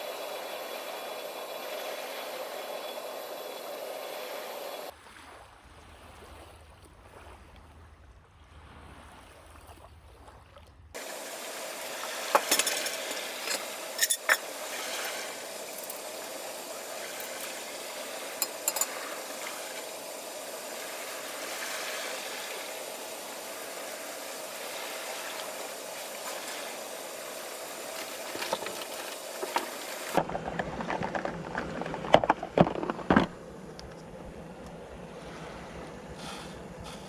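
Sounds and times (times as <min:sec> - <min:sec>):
rain falling: 0:11.0 - 0:31.9.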